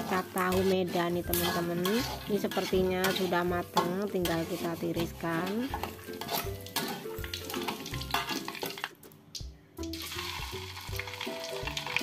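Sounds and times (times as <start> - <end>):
metal spoon scraping a wok: 0.0 - 8.9
hot oil sizzling: 0.0 - 9.0, 9.8 - 12.0.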